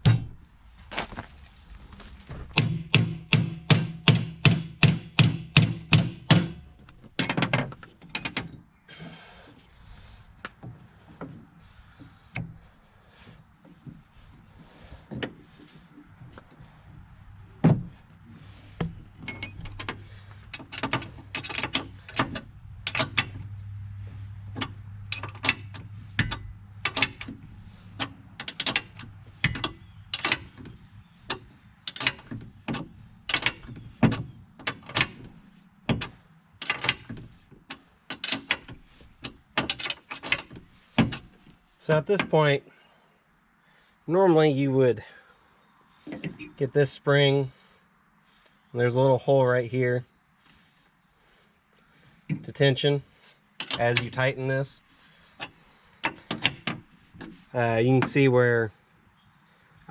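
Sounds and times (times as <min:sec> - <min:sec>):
metal clicks and knocks: 0:02.4 - 0:08.6, 0:18.8 - 0:23.5, 0:24.5 - 0:35.3, 0:35.9 - 0:41.4, 0:53.6 - 0:54.3, 0:55.4 - 0:57.4
regular clicks of hand tool: 0:02.5 - 0:09.6, 0:10.4 - 0:14.0, 0:18.4 - 0:23.5, 0:24.2 - 0:42.4, 0:52.2 - 0:58.3.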